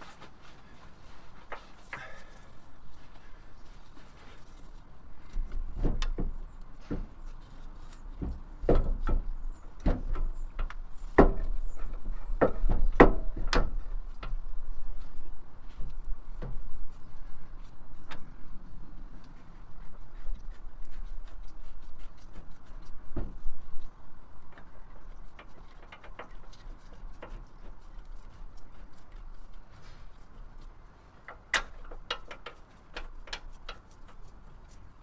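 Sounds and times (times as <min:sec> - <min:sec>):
tools knocking and clunking: 0:05.2 - 0:14.5, 0:24.4 - 0:34.4.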